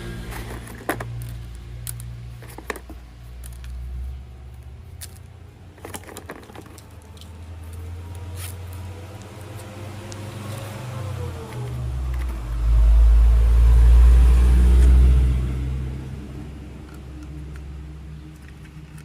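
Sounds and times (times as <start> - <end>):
plastic toy train parts clicking: 0.3 - 3.8, 4.5 - 7.4, 16.8 - 19.0.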